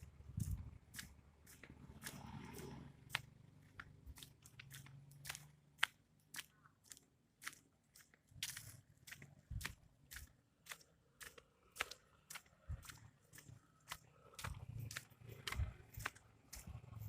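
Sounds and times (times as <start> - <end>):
sharp crunches and clicks: 0.4 - 17.0
person chewing: 6.3 - 16.8.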